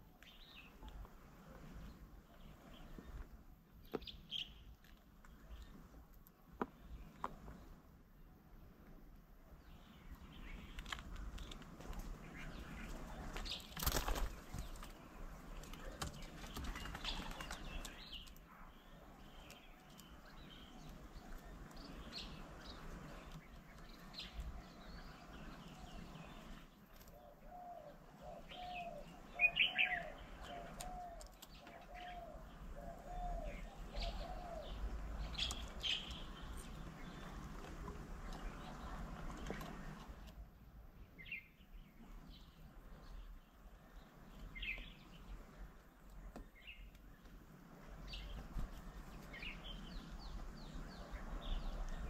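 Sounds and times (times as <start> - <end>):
birds chirping: 0.0 - 52.0
wings fluttering: 10.6 - 18.4.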